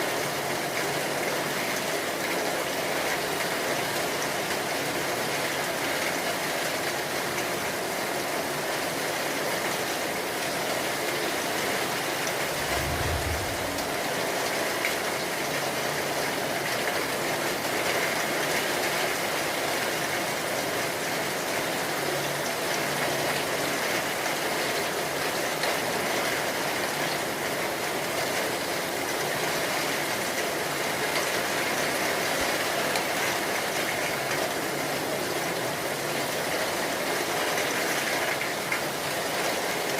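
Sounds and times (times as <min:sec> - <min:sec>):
heavy rain falling: 0:00.0 - 0:39.9
low rumble: 0:12.4 - 0:14.4.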